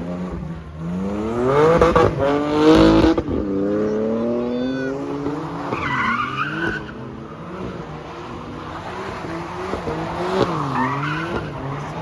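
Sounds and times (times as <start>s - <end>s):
car engine revving: 0.0s - 12.0s
tyre squeal: 3.9s - 7.1s, 9.9s - 11.8s.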